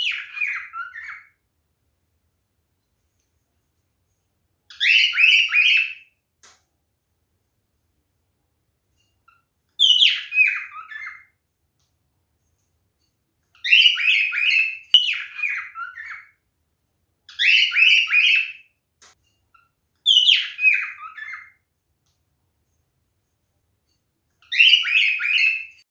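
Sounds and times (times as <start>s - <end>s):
cockatiel chirping: 0.0s - 1.4s, 4.7s - 6.1s, 9.2s - 11.4s, 13.5s - 16.4s, 17.3s - 18.7s, 19.5s - 21.6s, 24.4s - 25.8s.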